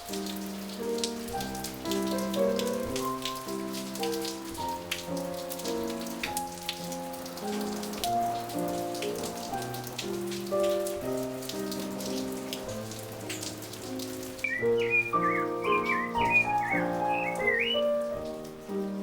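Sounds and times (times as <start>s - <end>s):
rain drops on patio: 0.0s - 19.0s
slow gentle chord music: 0.0s - 19.0s.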